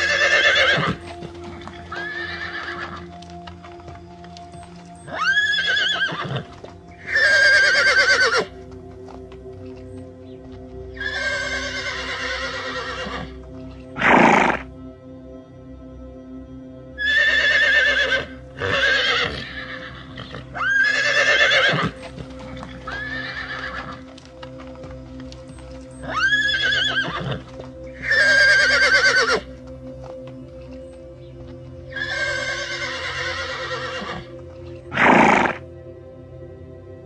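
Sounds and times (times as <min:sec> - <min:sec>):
horse whinnying: 0:00.0 - 0:01.0, 0:01.9 - 0:03.0, 0:05.1 - 0:08.5, 0:11.0 - 0:13.4, 0:14.0 - 0:14.6, 0:17.0 - 0:22.0, 0:22.9 - 0:24.0, 0:26.0 - 0:29.5, 0:31.9 - 0:34.3, 0:34.9 - 0:35.6
background music: 0:00.0 - 0:37.0.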